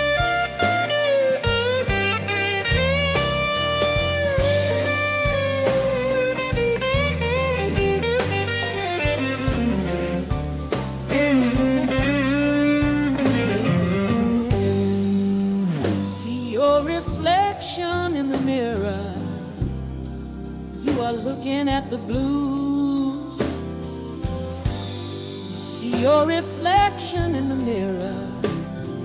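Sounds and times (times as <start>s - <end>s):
steady beat: 0.0s - 16.1s
blues guitar lead: 0.0s - 29.0s.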